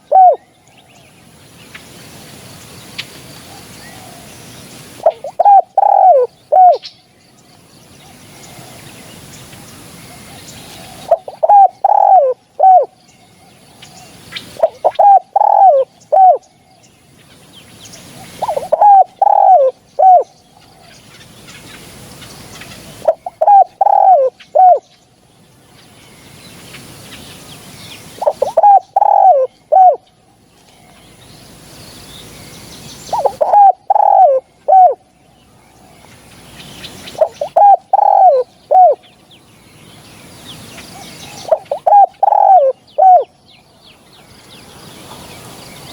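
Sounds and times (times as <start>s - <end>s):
dove cooing: 0.0s - 0.4s, 5.0s - 6.8s, 10.2s - 16.4s, 18.2s - 21.0s, 22.7s - 24.8s, 28.2s - 30.0s, 33.1s - 35.1s, 37.1s - 39.0s, 41.0s - 43.3s.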